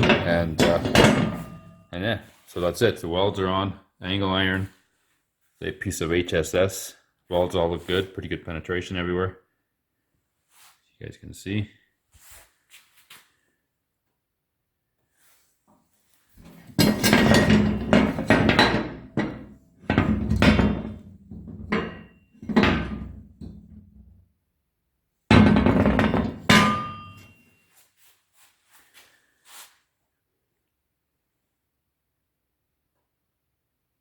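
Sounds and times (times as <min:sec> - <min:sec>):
metallic bangs and clanks: 0:00.0 - 0:01.9, 0:16.4 - 0:23.7, 0:25.3 - 0:27.4.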